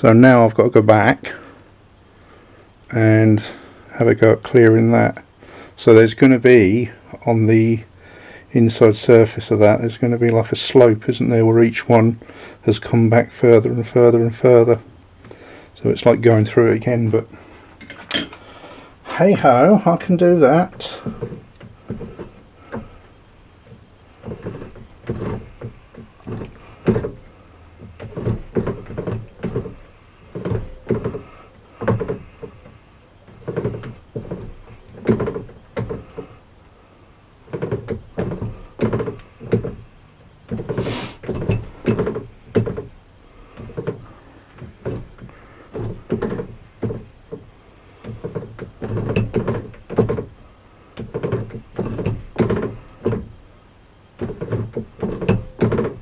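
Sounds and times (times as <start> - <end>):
broaching cutter clunks: 17.3 - 36.4, 37.5 - 50.4, 51.0 - 53.4, 54.2 - 56.0.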